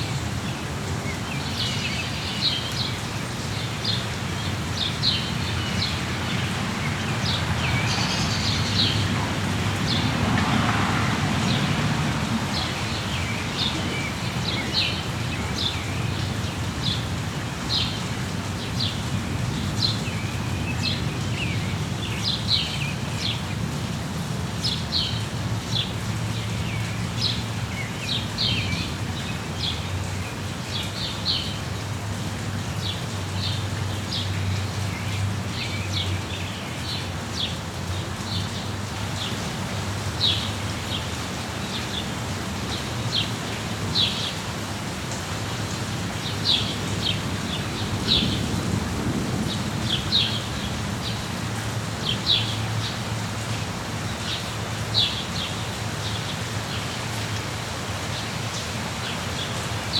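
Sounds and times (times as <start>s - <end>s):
small birds chirping: 0.0s - 10.1s, 11.4s - 23.6s, 46.1s - 48.5s
steady rain: 0.0s - 59.9s.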